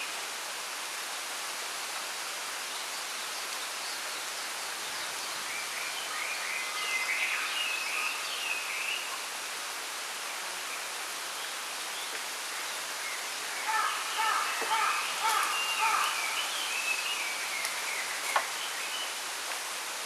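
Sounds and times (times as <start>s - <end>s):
wind rustling through bamboo: 0.0s - 20.0s
songbird chirping and trilling: 13.1s - 19.2s.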